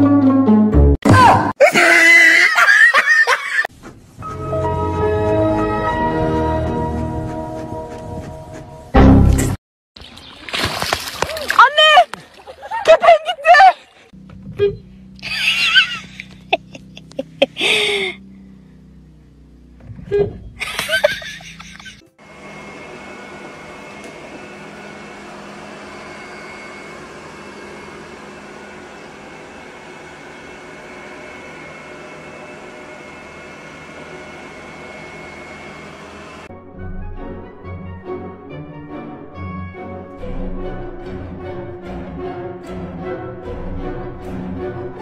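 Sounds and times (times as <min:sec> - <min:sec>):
person laughing: 0:01.6 - 0:03.7, 0:12.4 - 0:14.1, 0:15.2 - 0:18.2, 0:20.6 - 0:22.0
background music: 0:04.2 - 0:09.5, 0:36.5 - 0:45.0
robot vacuum running: 0:20.7 - 0:36.5.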